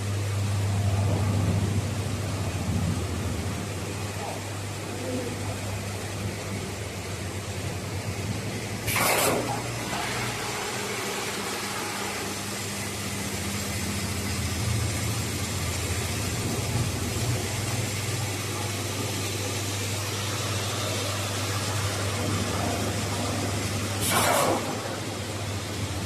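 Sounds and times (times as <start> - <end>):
welding machine hum: 5.6 - 26.0
machine hissing: 8.8 - 13.1, 23.9 - 25.5.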